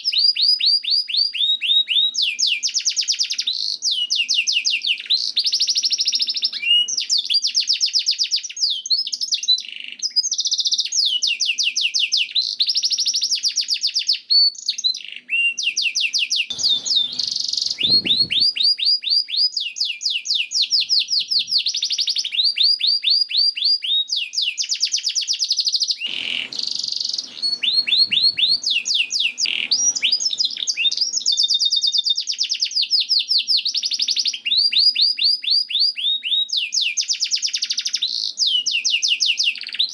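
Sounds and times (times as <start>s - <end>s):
canary singing fast trills: 0.0s - 39.9s
brief low noises: 16.5s - 18.5s.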